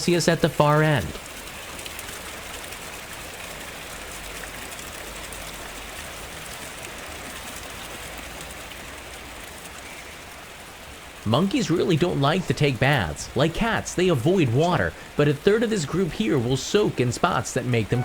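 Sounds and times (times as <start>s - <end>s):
water running: 0.0s - 1.3s, 11.0s - 18.0s.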